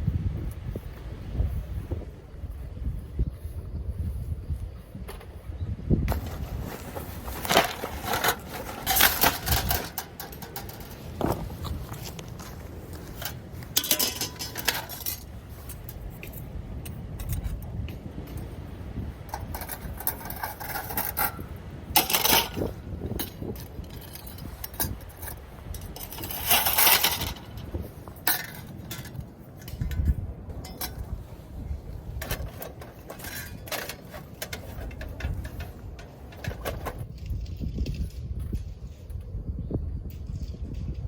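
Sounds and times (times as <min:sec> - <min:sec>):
small hard objects clinking: 0:06.1 - 0:16.4.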